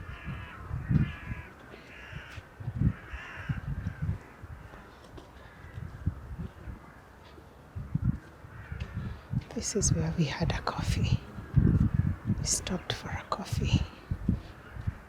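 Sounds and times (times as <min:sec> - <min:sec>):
crows cawing: 0:00.0 - 0:09.4.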